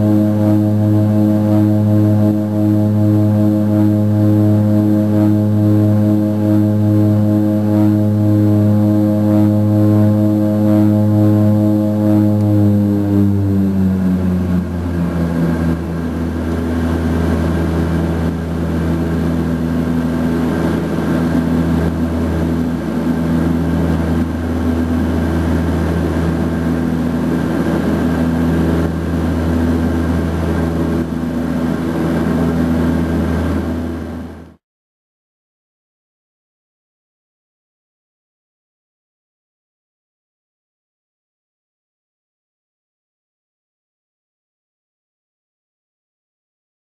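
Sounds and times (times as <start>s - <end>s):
turboprop engines droning: 0.0s - 34.6s.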